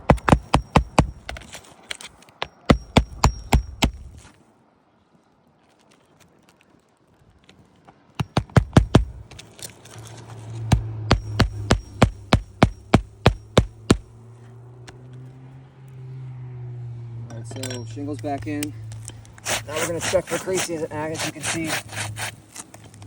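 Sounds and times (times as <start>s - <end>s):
fasteners being driven into shingles: 0.0s - 4.4s, 7.8s - 14.2s.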